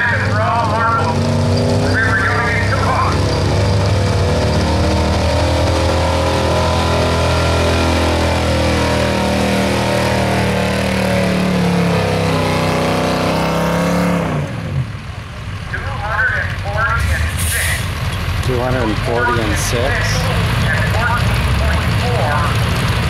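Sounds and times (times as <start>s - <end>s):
truck engine at full throttle: 0.0s - 23.0s.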